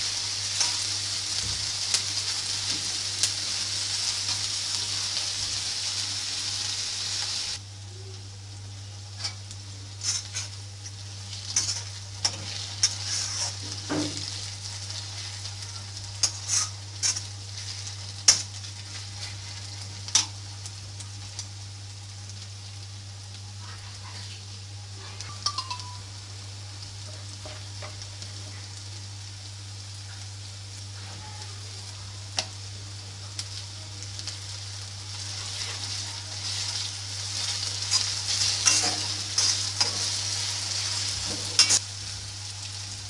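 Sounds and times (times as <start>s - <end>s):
onions sizzling in oil: 0.0s - 43.0s
metal spatula scraping wok: 10.0s - 10.6s, 11.5s - 13.8s, 16.2s - 18.4s, 37.5s - 41.8s.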